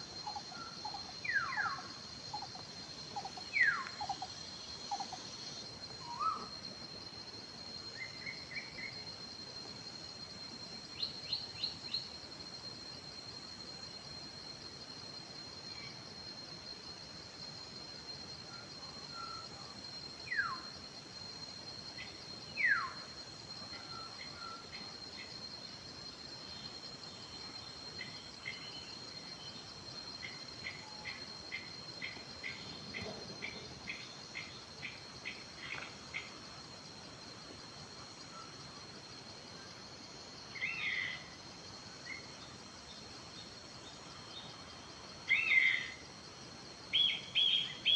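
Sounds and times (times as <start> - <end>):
high insect drone: 0.0 - 47.9.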